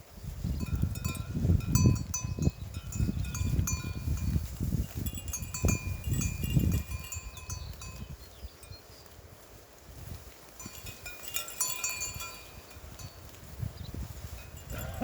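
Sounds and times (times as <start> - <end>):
goat bells clinking: 0.4 - 9.1, 10.0 - 15.0
rustling: 8.8 - 15.0.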